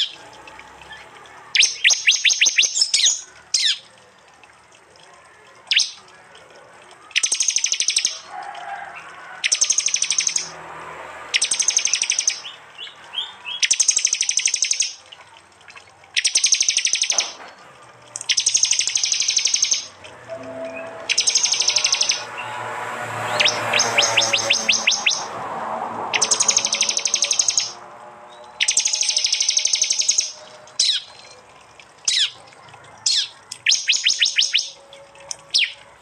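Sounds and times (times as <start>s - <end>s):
bird song with buzzing trills: 18.2s - 22.5s, 28.4s - 31.2s.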